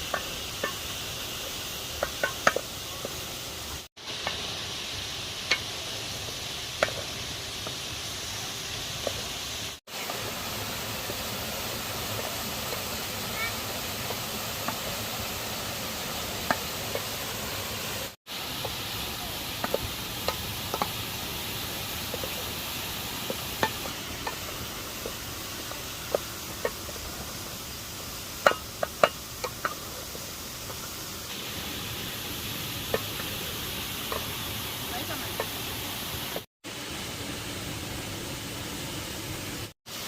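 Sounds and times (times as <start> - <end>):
cooking pot clicks and knocks: 2.0 - 3.2, 23.3 - 25.2, 28.4 - 30.0
waterfall rushing: 9.5 - 40.0.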